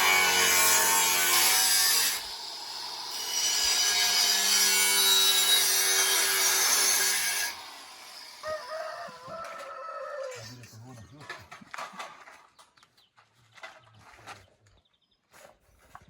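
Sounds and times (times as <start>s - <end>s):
saw cutting wood: 0.0s - 9.6s.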